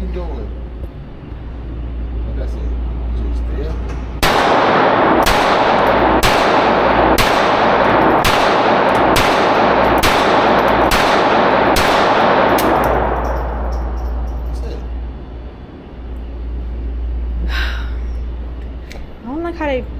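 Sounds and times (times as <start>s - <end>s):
pistol shots echoing: 4.2s - 14.6s.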